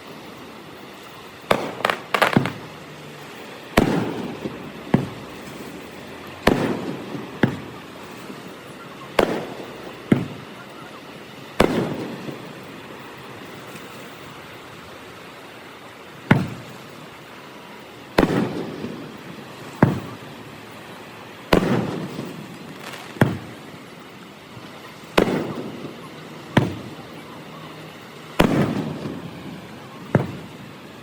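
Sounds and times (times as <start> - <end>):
fireworks bursting with bangs: 0.0 - 31.0.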